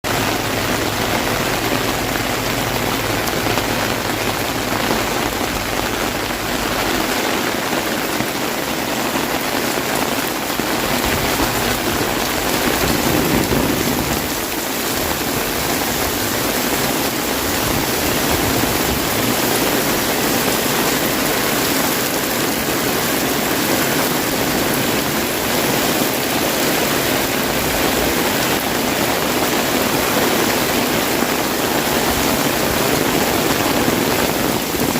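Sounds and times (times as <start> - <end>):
heavy rain on an umbrella: 0.0 - 34.9.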